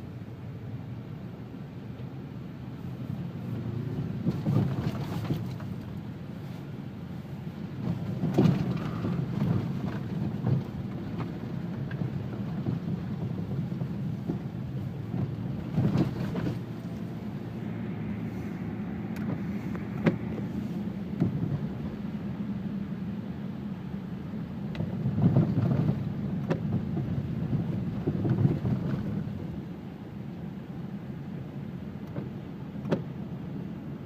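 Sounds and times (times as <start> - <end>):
car road rumble: 0.0 - 34.0
car jolting thumps: 7.8 - 11.0, 15.1 - 17.1.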